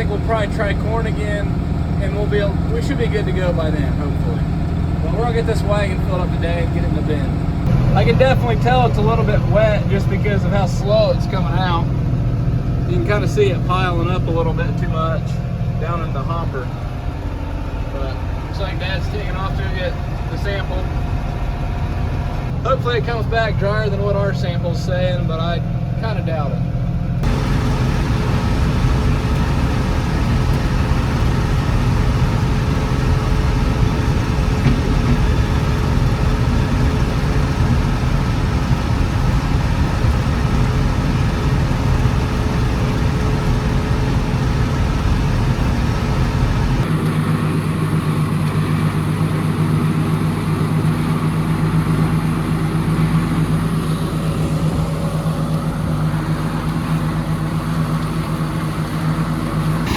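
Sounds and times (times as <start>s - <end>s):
combine harvester running: 0.0s - 59.9s
evenly pitched machine hum: 27.2s - 59.9s.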